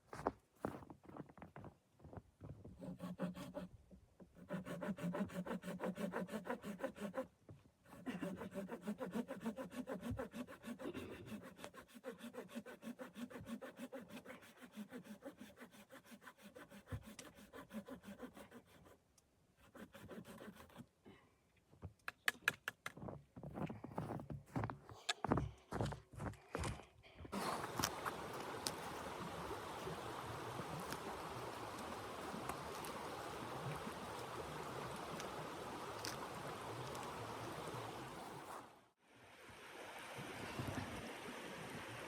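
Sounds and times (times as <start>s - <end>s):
hand saw cutting wood: 2.8s - 7.3s, 7.9s - 19.0s, 19.6s - 20.9s, 27.3s - 38.7s.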